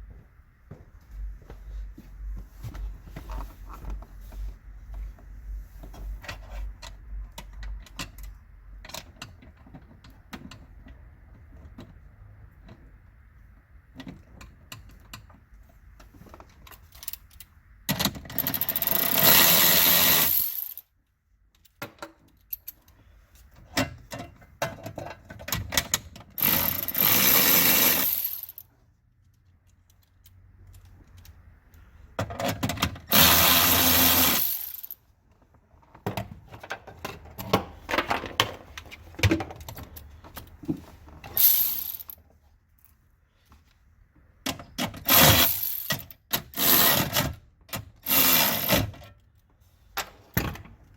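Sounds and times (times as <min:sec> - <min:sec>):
parts clicking and clinking: 0:13.9 - 0:43.1, 0:44.4 - 0:50.9
power drill driving fasteners: 0:18.3 - 0:20.8, 0:26.4 - 0:28.6, 0:33.1 - 0:35.0, 0:41.3 - 0:42.2, 0:45.0 - 0:47.3, 0:48.0 - 0:49.0.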